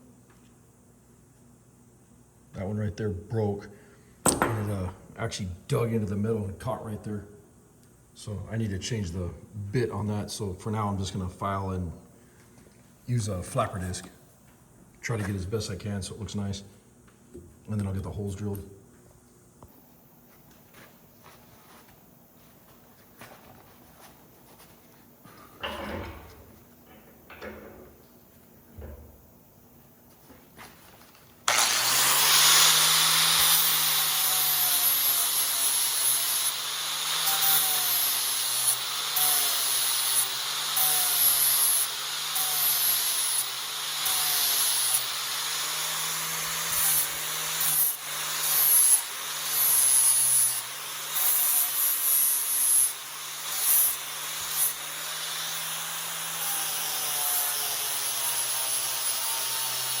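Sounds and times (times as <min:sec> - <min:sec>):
angle grinder sanding steel: 0:31.5 - 1:00.0.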